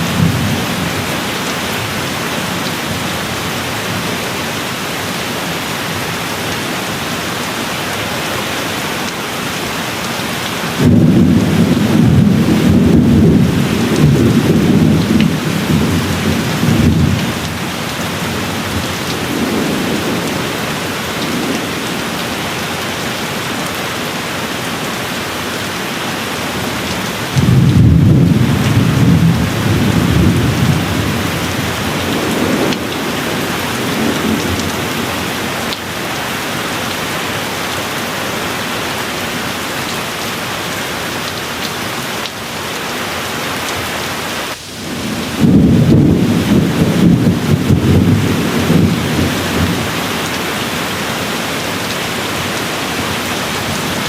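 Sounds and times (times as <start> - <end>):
thunder rumbling: 0.0 - 3.1, 10.7 - 22.9, 26.6 - 35.8, 44.4 - 51.0
steady rain: 0.0 - 54.0.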